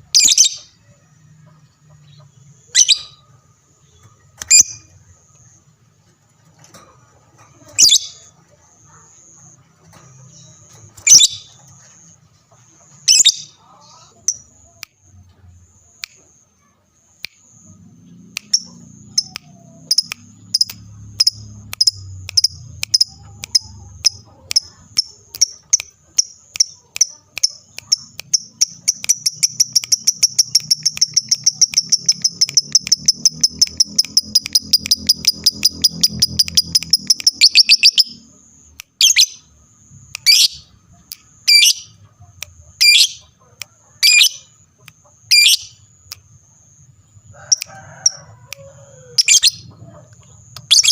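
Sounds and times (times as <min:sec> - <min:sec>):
lovebird chirping and chattering: 0:00.0 - 0:00.9, 0:01.5 - 0:03.2, 0:03.8 - 0:05.6, 0:07.6 - 0:09.4, 0:10.1 - 0:12.0, 0:12.9 - 0:14.9, 0:18.1 - 0:39.5, 0:40.1 - 0:43.4, 0:44.0 - 0:45.8, 0:49.2 - 0:50.9.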